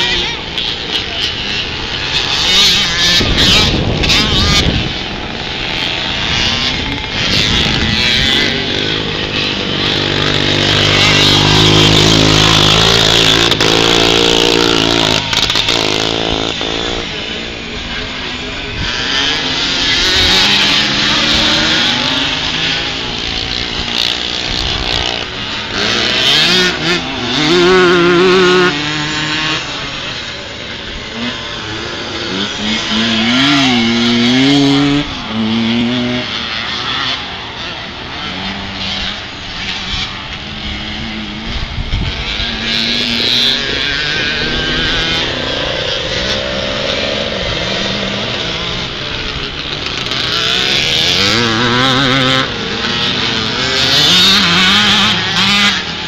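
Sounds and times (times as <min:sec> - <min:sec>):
motocross bike engines revving: 0:00.0 - 0:56.0.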